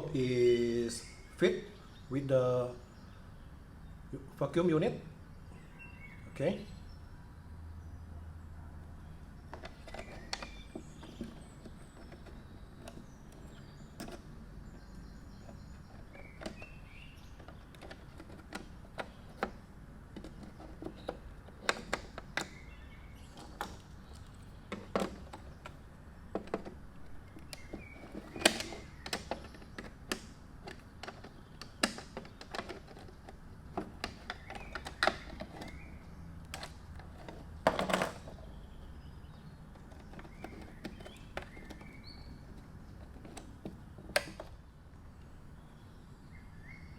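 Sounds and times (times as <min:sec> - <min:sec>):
plastic parts clicking and knocking: 0:09.4 - 0:38.5, 0:39.6 - 0:44.6.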